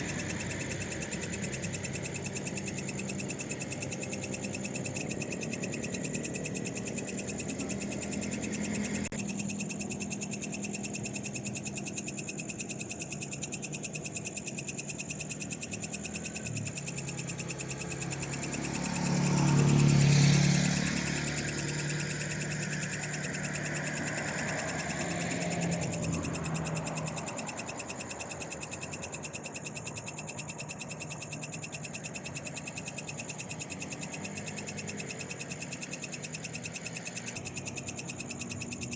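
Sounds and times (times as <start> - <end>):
frogs calling: 0.0 - 38.9
vehicle passing: 17.2 - 27.8.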